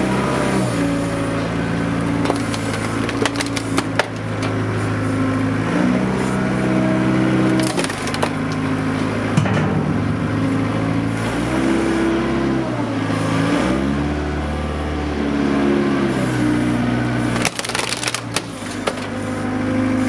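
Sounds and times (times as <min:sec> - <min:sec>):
tractor engine running: 0:00.0 - 0:20.0
plastic cracking and snapping: 0:02.2 - 0:04.6, 0:07.5 - 0:08.7, 0:17.3 - 0:19.2.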